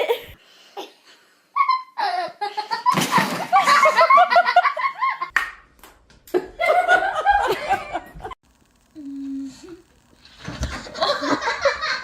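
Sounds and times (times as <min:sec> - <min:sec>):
people laughing: 0:06.4 - 0:08.4, 0:10.8 - 0:12.0.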